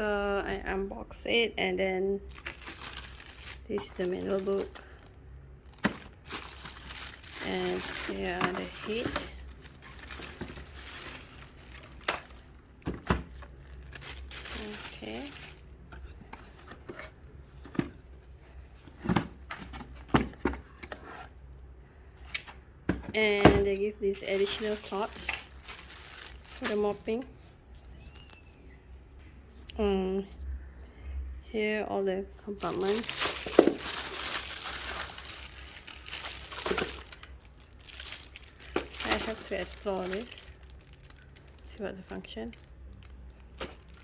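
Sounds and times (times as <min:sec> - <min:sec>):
packaging crinkling: 0:02.2 - 0:17.1, 0:23.6 - 0:28.5, 0:32.6 - 0:44.0.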